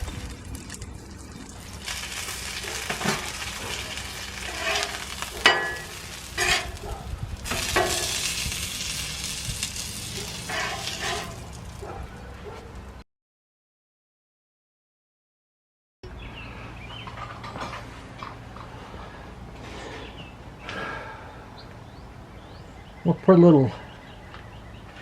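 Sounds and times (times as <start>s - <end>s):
chicken sizzling in hot oil: 0.0s - 11.8s
short clinks and scrapes: 2.9s - 6.8s, 10.2s - 11.6s.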